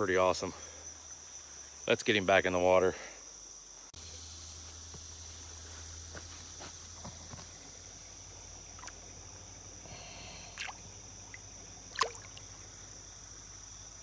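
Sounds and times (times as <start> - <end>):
crickets droning: 0.0 - 14.0
splashes in shallow water: 8.6 - 9.1, 10.4 - 12.8.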